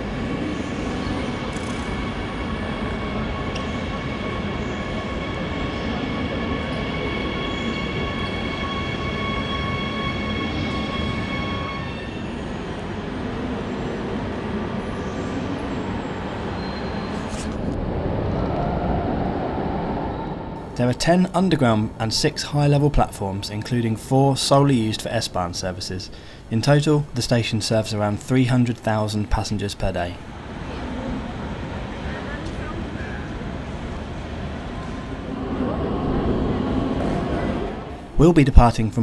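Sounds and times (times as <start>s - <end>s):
train rumble: 28.7s - 39.0s.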